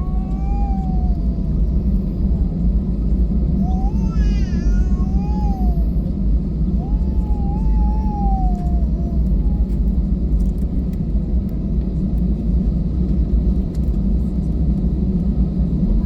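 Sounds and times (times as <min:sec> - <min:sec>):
jet engines rumbling in cabin: 0:00.0 - 0:16.0.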